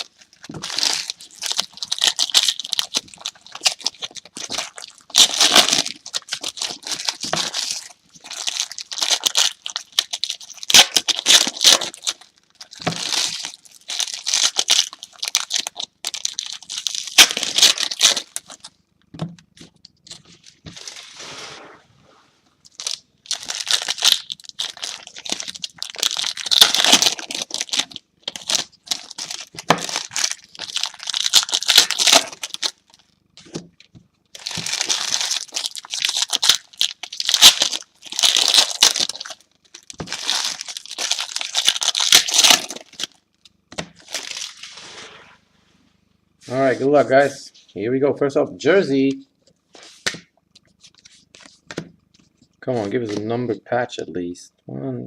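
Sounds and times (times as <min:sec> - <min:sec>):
plastic wrapping crinkling and tearing: 0:00.0 - 0:18.8, 0:22.6 - 0:45.0.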